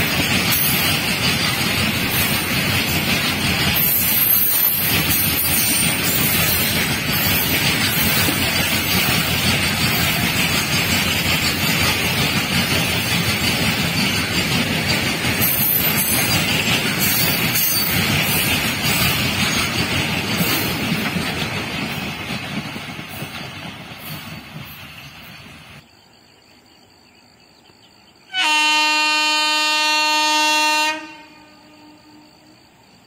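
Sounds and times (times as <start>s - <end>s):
train wheels rumbling and clattering: 0.0s - 25.9s.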